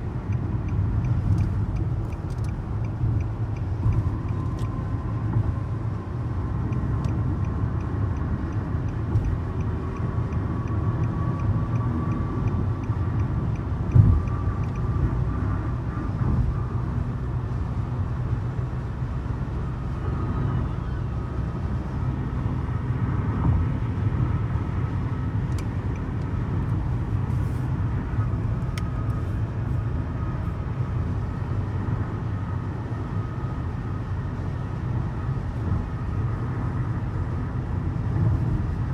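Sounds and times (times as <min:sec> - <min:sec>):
light regular ticking: 0:00.0 - 0:16.4, 0:25.4 - 0:29.7.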